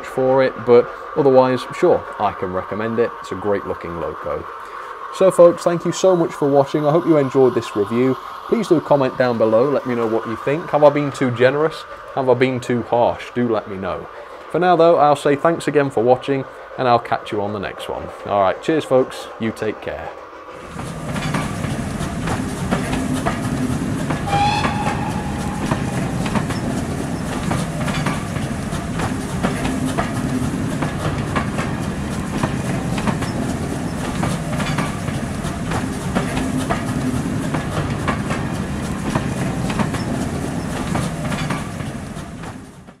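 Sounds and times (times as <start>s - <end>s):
train wheels clickety-clack: 0.0s - 43.0s
short high whistle tone: 24.2s - 27.3s.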